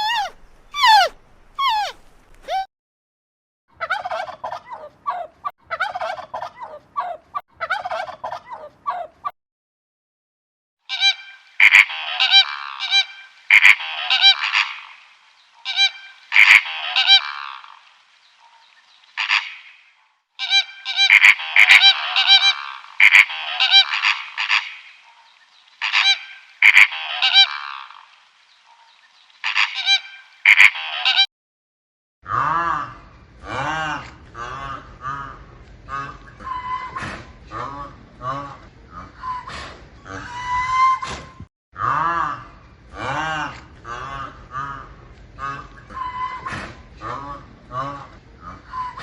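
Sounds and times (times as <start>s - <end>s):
loud bird calls: 0.0s - 2.6s.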